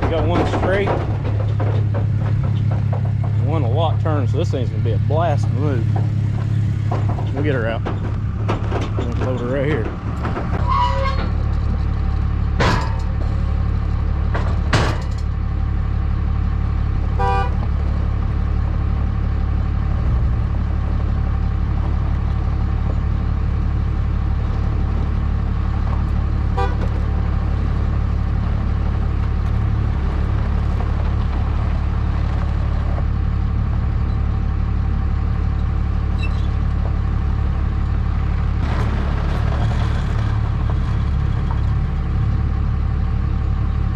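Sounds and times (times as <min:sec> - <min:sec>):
sharp knocks: 0:00.0 - 0:04.0
vehicle engine idling: 0:00.0 - 0:43.9.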